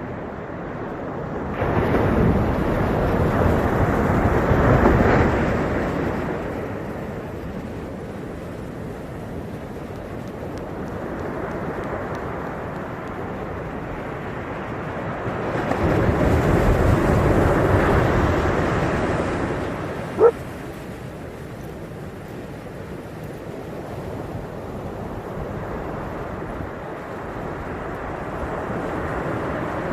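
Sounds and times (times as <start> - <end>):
ocean surf washing: 0.0 - 29.9
dog bark: 20.1 - 20.4.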